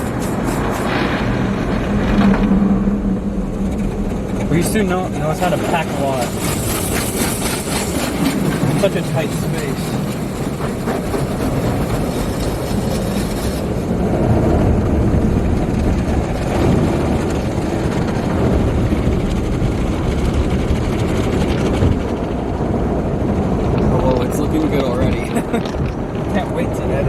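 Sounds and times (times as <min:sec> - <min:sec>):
car wash equipment roaring: 0:00.0 - 0:27.0.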